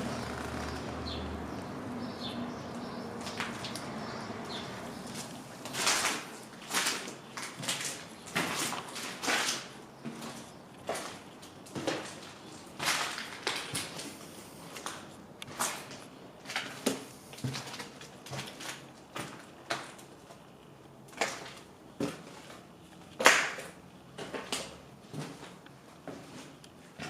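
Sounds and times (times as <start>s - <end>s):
footsteps crunching over debris: 4.5s - 20.4s.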